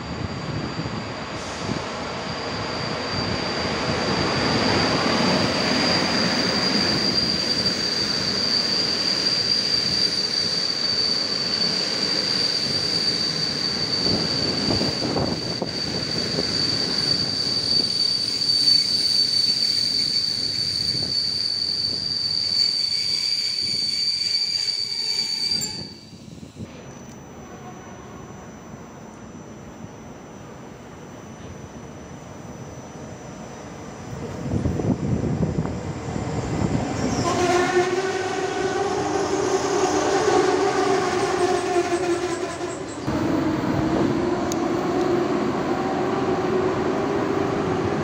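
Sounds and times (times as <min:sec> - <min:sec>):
train wheel squeal: 0:00.0 - 0:48.0
train wheels rumbling: 0:34.0 - 0:48.0.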